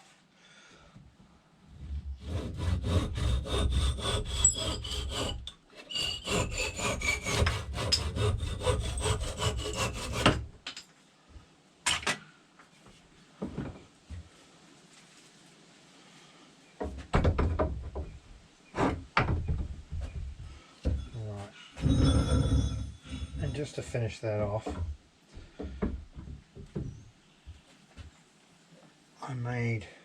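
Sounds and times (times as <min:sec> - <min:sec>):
hand saw cutting wood: 0:02.2 - 0:10.5.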